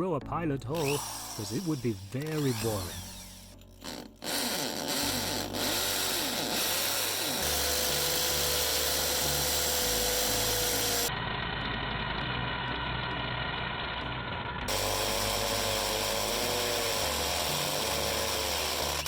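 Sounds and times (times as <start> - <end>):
hammer drill boring into brick: 0.8 - 11.1, 14.7 - 19.0.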